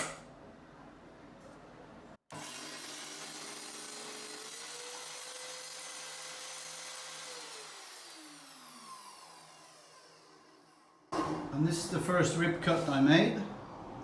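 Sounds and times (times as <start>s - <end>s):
circular saw spinning: 2.4s - 10.9s.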